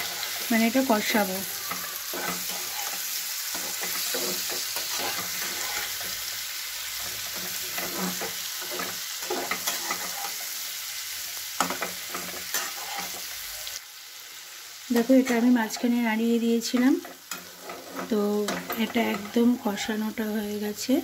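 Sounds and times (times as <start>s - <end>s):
spatula scraping pan: 0.0s - 10.6s, 11.6s - 13.5s, 16.7s - 19.9s
vegetables sizzling in oil: 0.0s - 21.0s.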